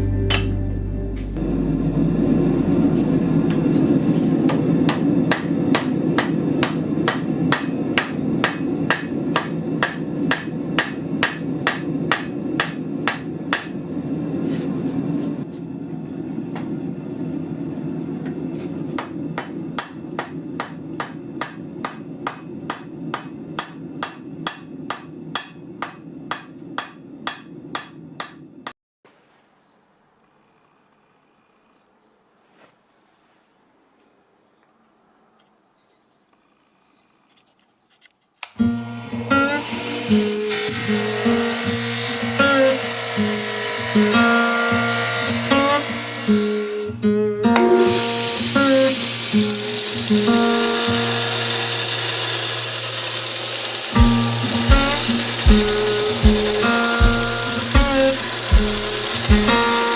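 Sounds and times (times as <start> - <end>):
steady low drone: 0.0 - 4.4
hammer striking steel on anvil: 0.2 - 1.3, 4.5 - 13.8, 19.0 - 28.4, 54.0 - 59.9.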